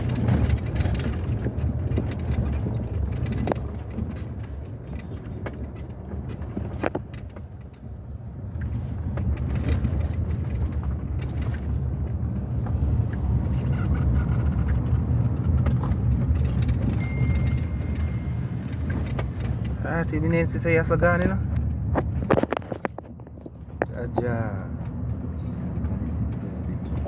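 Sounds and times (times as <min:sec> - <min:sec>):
engine and road noise rumble: 0:00.0 - 0:27.0.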